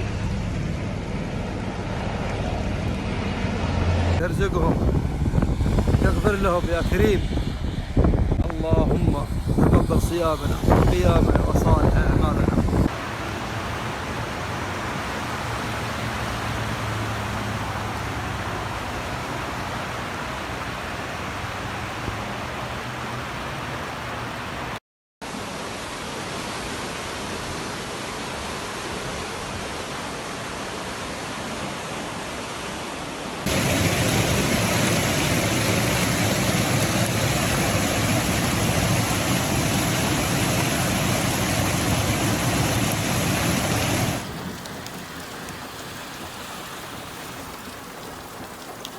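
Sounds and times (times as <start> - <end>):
heavy water rushing: 0.0 - 48.9.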